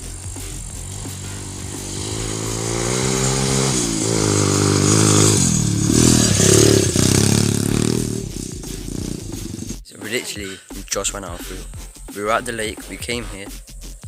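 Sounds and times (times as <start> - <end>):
motorcycle engine revving: 0.0 - 9.9.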